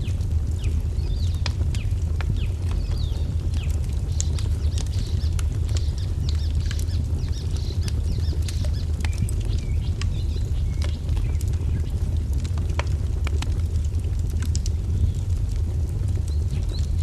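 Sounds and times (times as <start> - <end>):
small birds chirping: 0.0 - 12.0
steady low rumble: 0.0 - 17.0
wood fire crackling: 0.0 - 17.0.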